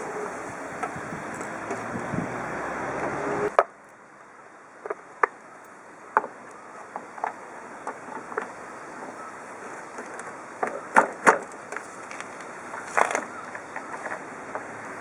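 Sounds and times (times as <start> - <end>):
lawn mower engine buzzing: 0.0 - 3.6.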